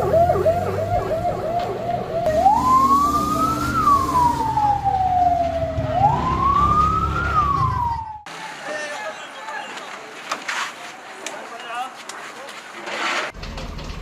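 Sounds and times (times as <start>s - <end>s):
emergency vehicle siren: 0.0s - 9.0s.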